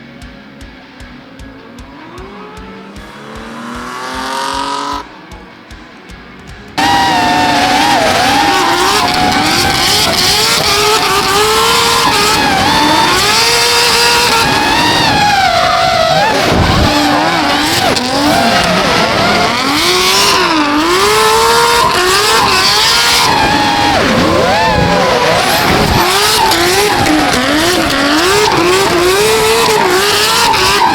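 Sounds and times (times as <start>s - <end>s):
car engine revving hard: 1.0s - 5.8s, 6.7s - 30.9s
tyres squealing: 1.5s - 30.9s.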